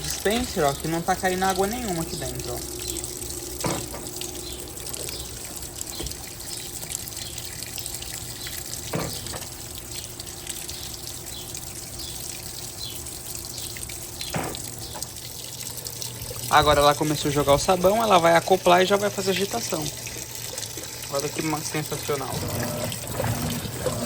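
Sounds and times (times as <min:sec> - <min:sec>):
low hum: 0:00.0 - 0:07.2
water splashing into washing machine: 0:00.0 - 0:24.0.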